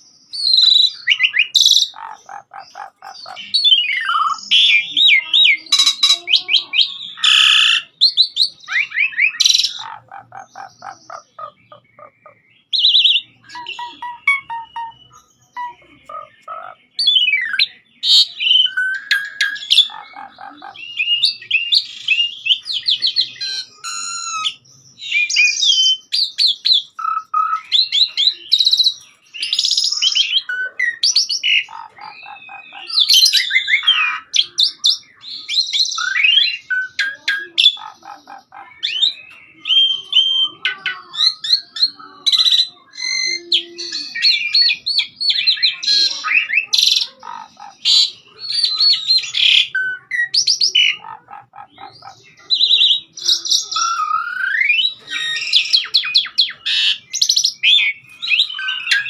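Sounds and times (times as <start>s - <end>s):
starling singing: 0.0s - 59.0s.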